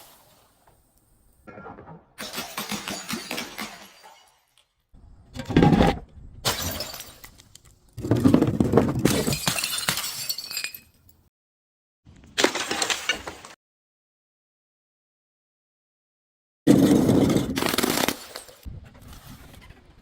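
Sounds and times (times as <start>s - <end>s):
glass bottles shattering: 2.2s - 4.7s, 6.4s - 7.5s, 9.0s - 11.1s.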